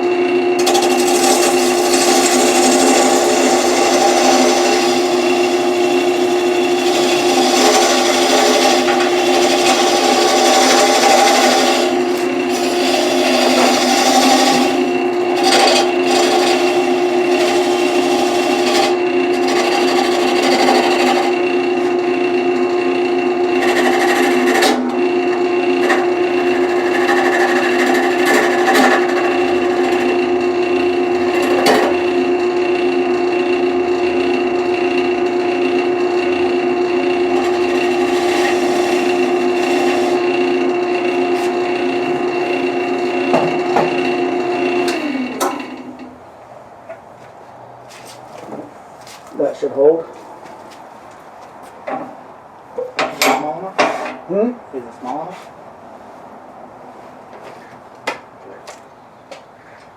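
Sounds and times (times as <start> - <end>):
turning tool scraping wood: 0.0 - 33.2, 35.6 - 46.1, 47.9 - 51.8
lathe motor hum: 0.0 - 46.4.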